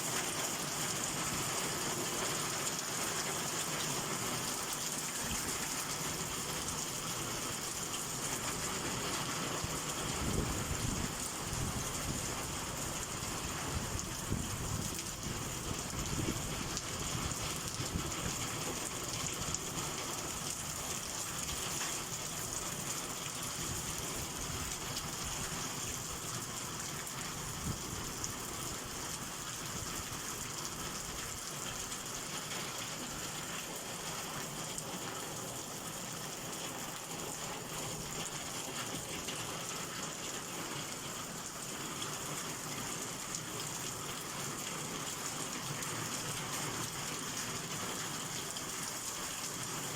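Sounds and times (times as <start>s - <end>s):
heavy rain pouring: 0.0s - 49.9s.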